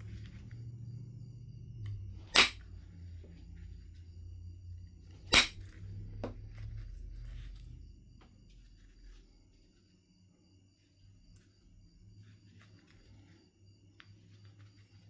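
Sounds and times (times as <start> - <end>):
low steady hum: 0.0 - 9.8
stone knapping strikes: 2.3 - 2.6, 5.3 - 5.7.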